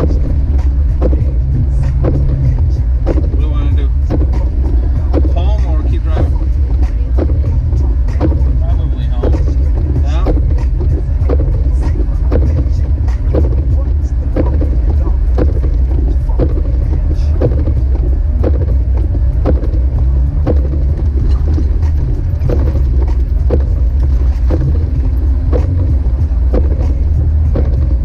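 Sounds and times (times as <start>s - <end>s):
car engine rumble: 0.0s - 28.0s
music with regular beat: 0.0s - 28.0s.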